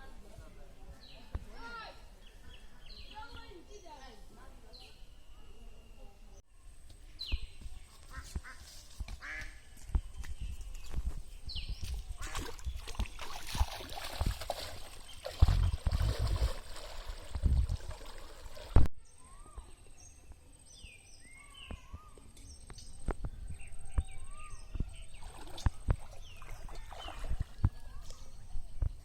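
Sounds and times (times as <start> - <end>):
small birds chirping: 0.9 - 16.6, 19.0 - 29.0
water splashing and sloshing: 11.8 - 18.9, 25.2 - 28.5.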